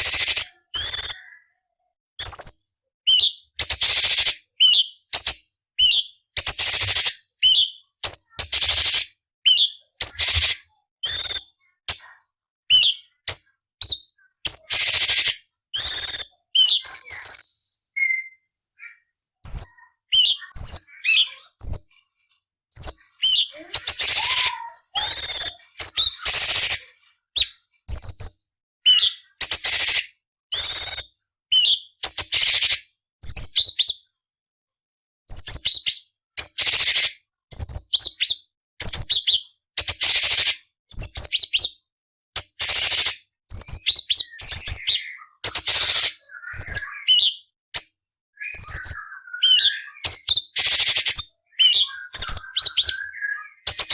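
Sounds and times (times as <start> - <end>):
songbird singing: 12.7 - 22.0, 22.7 - 27.6, 44.1 - 47.5, 48.4 - 50.2, 51.3 - 53.9.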